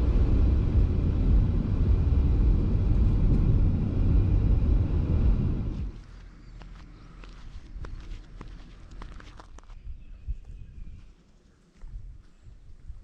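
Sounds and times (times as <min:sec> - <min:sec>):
car engine and road noise: 0:00.0 - 0:09.7.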